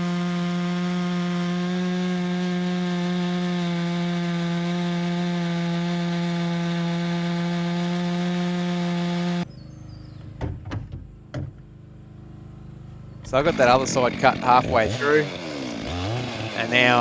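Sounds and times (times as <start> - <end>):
chainsaw cutting timber: 0.0 - 9.5, 13.2 - 17.0.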